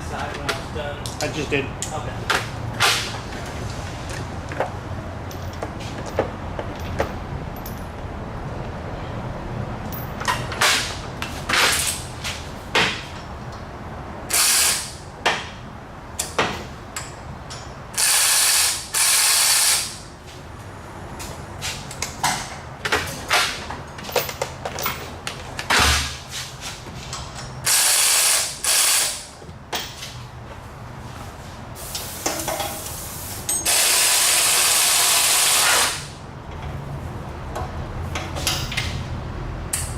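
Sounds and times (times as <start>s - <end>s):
air tool hissing: 14.3s - 15.0s, 18.0s - 20.0s, 27.7s - 29.3s, 31.8s - 36.1s
ratchet clicking: 18.0s - 20.0s
metal clinks: 33.5s - 33.7s.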